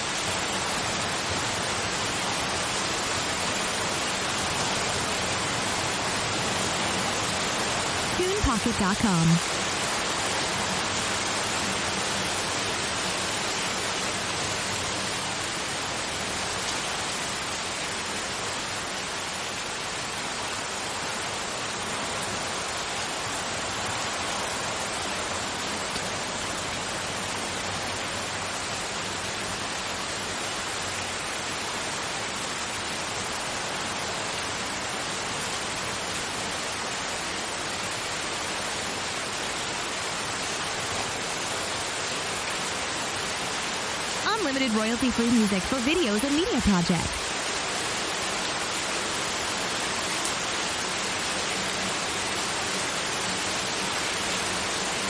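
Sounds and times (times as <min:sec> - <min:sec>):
steady broadband hiss: 0:08.0 - 0:09.8, 0:43.9 - 0:55.0.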